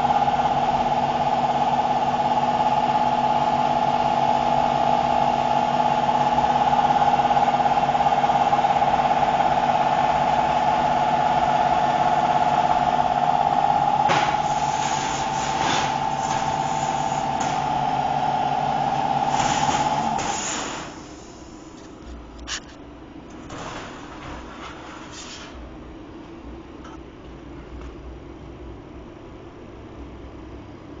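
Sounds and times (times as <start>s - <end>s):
short hissing bursts: 14.4s - 17.5s, 19.2s - 21.8s.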